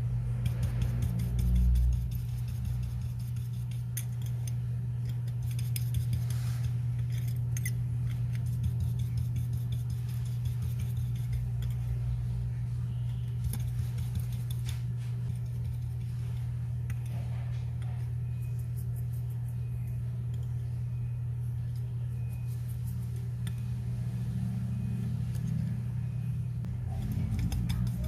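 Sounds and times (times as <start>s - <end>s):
steady low hum: 0.0s - 28.0s
small metal tools clicking: 3.7s - 6.0s, 7.0s - 9.1s.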